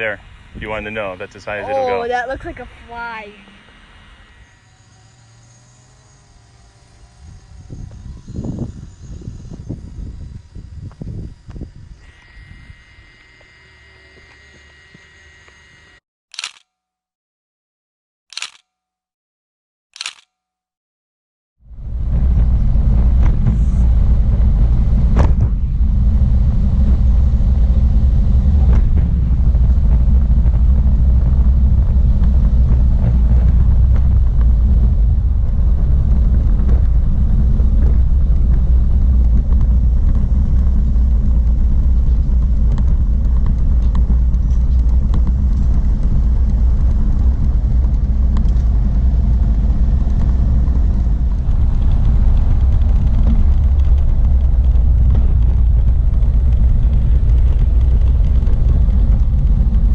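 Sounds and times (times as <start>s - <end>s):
wind noise: 0.0s - 13.4s, 21.6s - 59.9s
motorcycle engine rumble: 21.7s - 59.9s.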